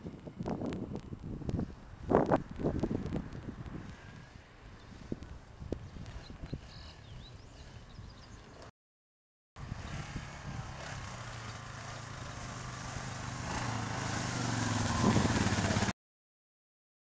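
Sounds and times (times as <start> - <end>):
atv engine running: 9.6 - 15.9.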